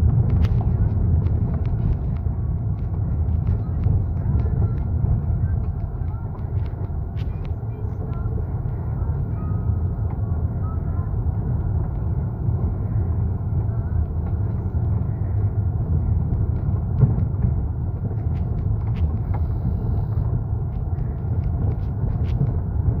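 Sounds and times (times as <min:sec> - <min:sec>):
vehicle low rumble: 0:00.0 - 0:23.0.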